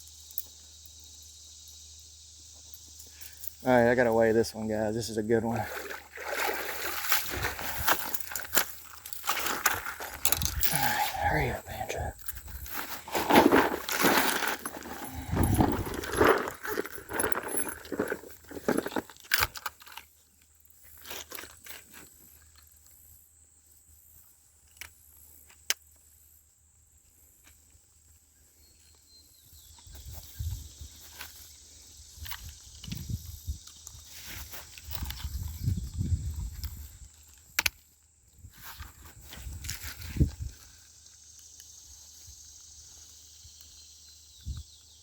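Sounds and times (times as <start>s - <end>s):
rustling and clattering handling noises: 6.4s - 22.7s, 33.8s - 37.7s.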